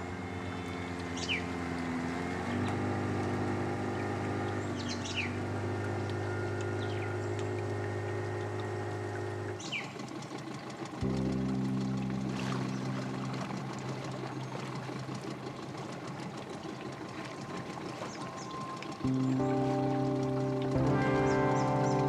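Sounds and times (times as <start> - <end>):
boat motor running: 0.0 - 22.0
bird whistled call: 1.2 - 1.4.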